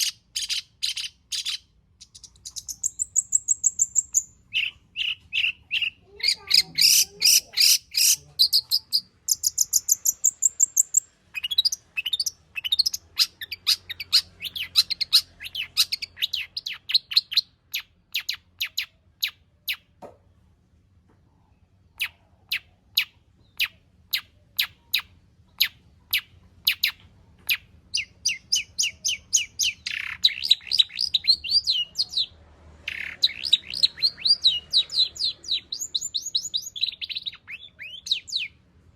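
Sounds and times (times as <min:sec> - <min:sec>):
shrike singing sharp chirps: 0:28.0 - 0:38.6.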